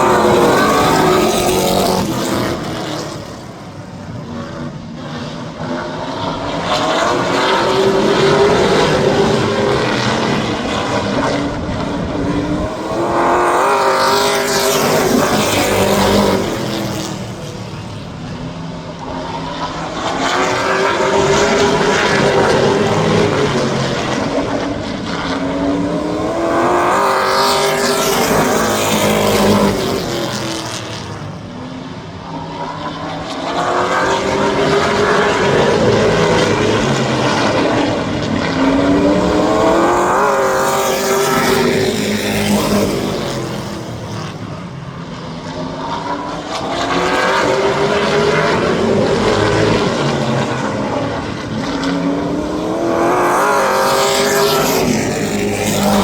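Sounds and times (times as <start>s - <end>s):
race truck engines passing: 0.0s - 56.0s.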